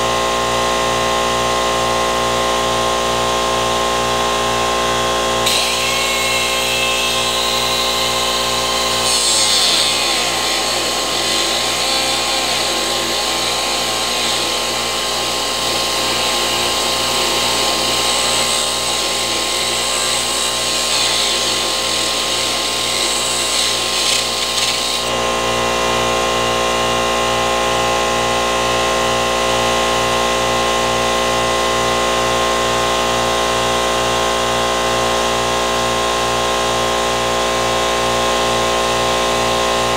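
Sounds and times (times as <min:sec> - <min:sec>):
power tool humming: 0:04.4 - 0:26.0
harsh grinding: 0:05.4 - 0:25.2.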